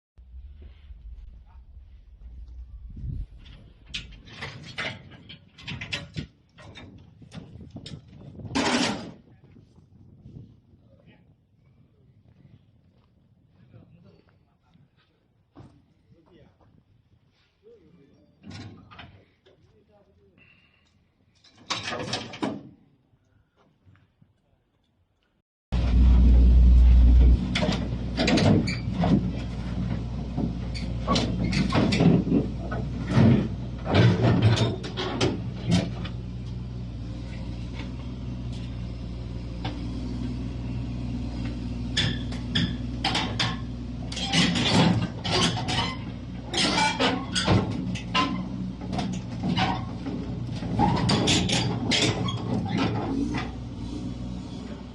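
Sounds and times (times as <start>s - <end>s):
low rumble: 0.2s - 5.8s, 25.7s - 34.7s
machine clanks and knocks: 3.2s - 9.2s, 21.5s - 22.7s, 27.3s - 36.6s, 41.4s - 53.7s
excavator diesel engine: 25.7s - 54.9s.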